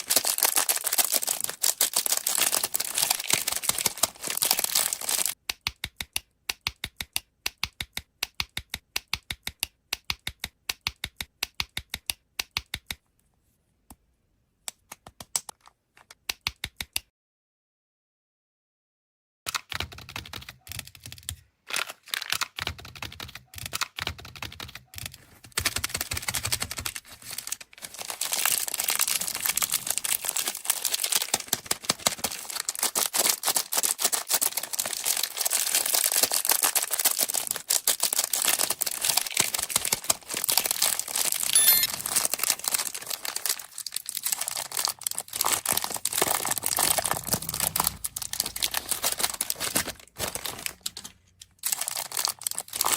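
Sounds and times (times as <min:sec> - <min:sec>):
plastic wrapper crinkling: 0:00.0 - 0:05.4, 0:25.2 - 0:52.9
clicks and taps: 0:05.4 - 0:13.3, 0:14.6 - 0:17.1.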